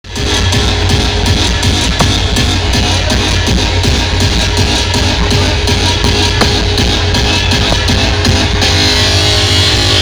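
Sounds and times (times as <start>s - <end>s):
electronic dance music: 0.1s - 10.0s.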